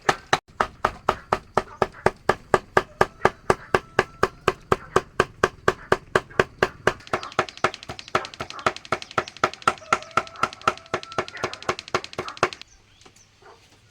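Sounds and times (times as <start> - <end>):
knife chopping on wooden board: 0.0 - 12.6.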